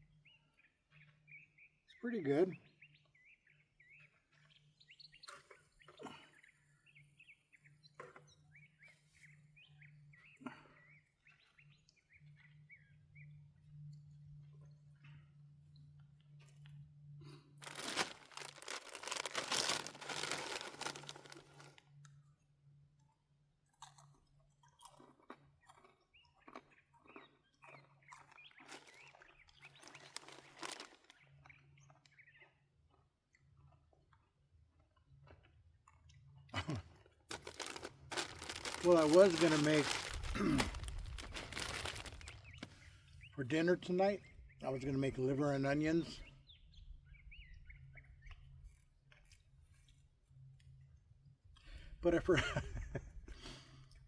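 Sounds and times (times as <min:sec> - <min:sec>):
small birds chirping: 0:00.0 - 0:16.4, 0:17.6 - 0:21.8, 0:24.8 - 0:33.8, 0:37.3 - 0:50.0
person chewing and crunching: 0:17.6 - 0:21.8, 0:23.7 - 0:31.0, 0:35.2 - 0:42.4.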